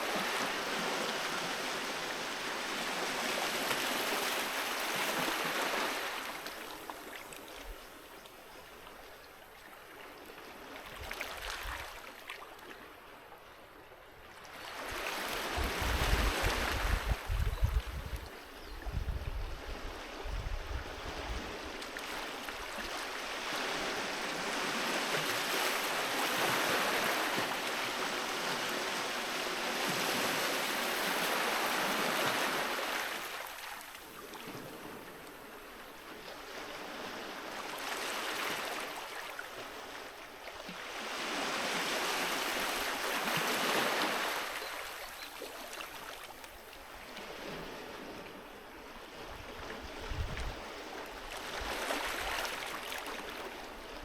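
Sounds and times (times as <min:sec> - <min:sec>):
sea waves washing onto beach: 0:00.0 - 0:07.5, 0:20.9 - 0:48.7.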